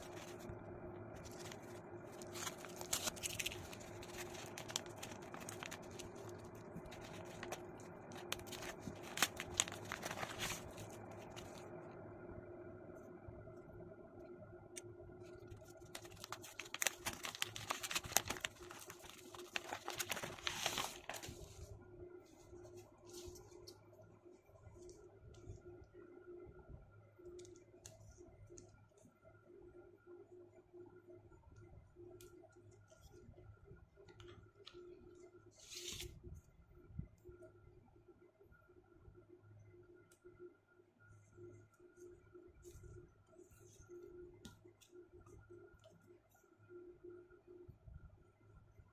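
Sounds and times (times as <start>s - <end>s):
crinkling and rustling: 0.0s - 11.7s, 15.2s - 23.8s
faint hum: 0.0s - 48.9s.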